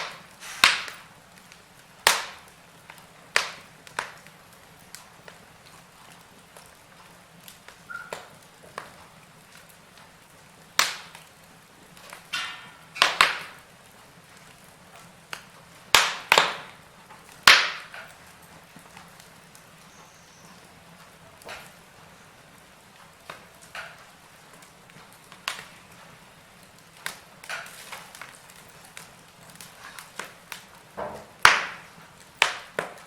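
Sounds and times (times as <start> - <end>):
loud sharp pops: 0.0 - 5.4, 10.7 - 11.3, 12.0 - 13.7, 15.0 - 18.2, 26.8 - 33.0
soft hiss: 0.0 - 33.0
wood fire crackling: 0.0 - 33.0.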